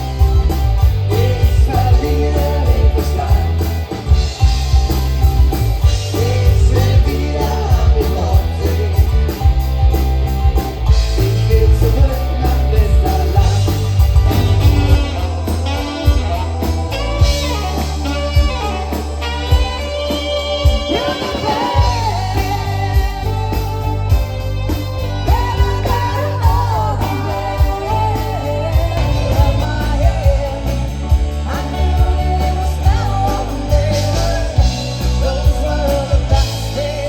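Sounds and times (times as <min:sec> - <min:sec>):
bass guitar: 0:00.0 - 0:37.0
electric guitar: 0:00.0 - 0:37.0
person singing: 0:00.8 - 0:04.4, 0:05.9 - 0:09.6, 0:11.0 - 0:24.3, 0:25.1 - 0:37.0
drum beat: 0:09.4 - 0:18.8, 0:28.8 - 0:31.4.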